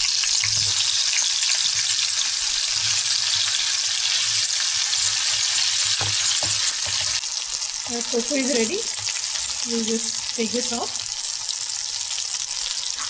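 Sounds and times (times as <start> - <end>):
tofu sizzling in oil: 0.0 - 13.0.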